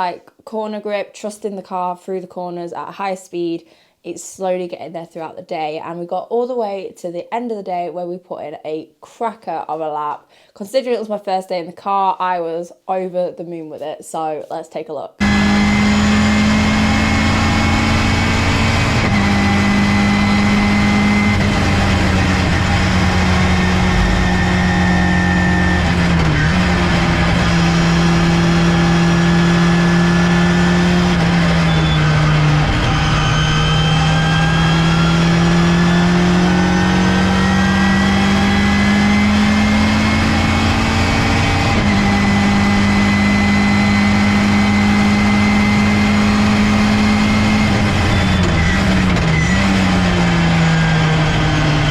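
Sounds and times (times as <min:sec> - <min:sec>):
race car engine at speed: 0:15.2 - 0:51.9.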